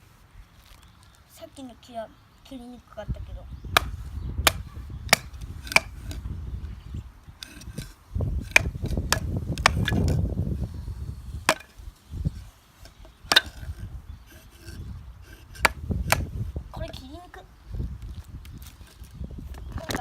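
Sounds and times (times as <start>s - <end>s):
sharp wooden knocks: 3.8s - 6.2s, 8.5s - 10.2s, 11.5s - 11.7s, 13.3s - 13.8s.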